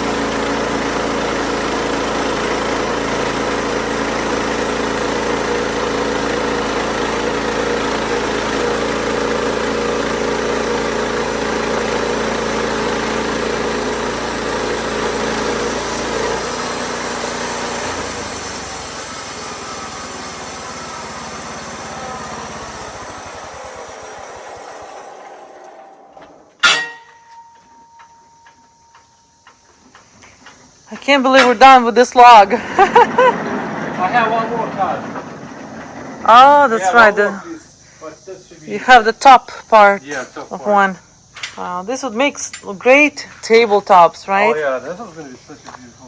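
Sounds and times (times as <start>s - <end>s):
band sawmill running: 0.0s - 37.5s, 43.2s - 46.0s.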